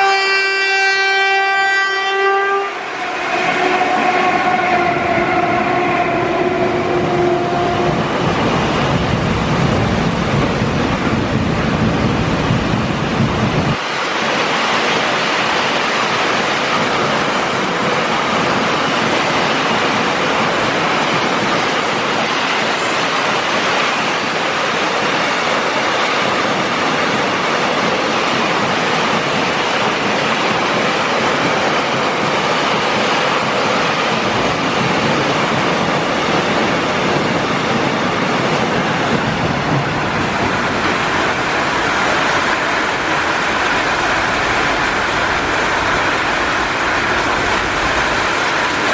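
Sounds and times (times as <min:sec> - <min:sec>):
train horn: 0:00.0 - 0:08.1
passing train rumbling: 0:00.0 - 0:48.9.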